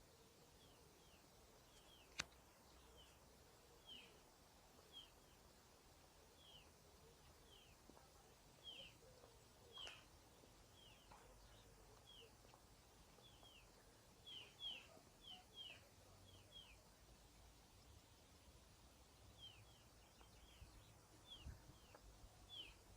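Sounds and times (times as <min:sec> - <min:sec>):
sharp click: 0:02.1 - 0:02.4.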